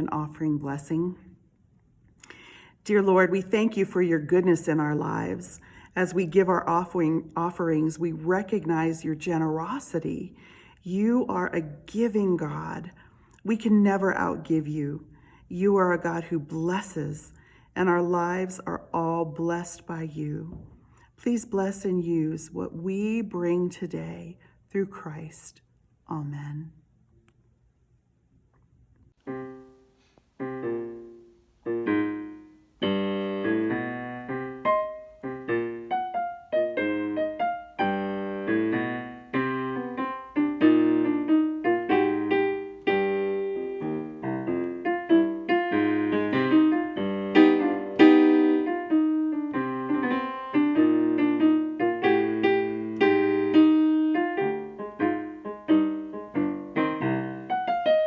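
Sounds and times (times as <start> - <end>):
solo piano music: 29.2 - 58.0.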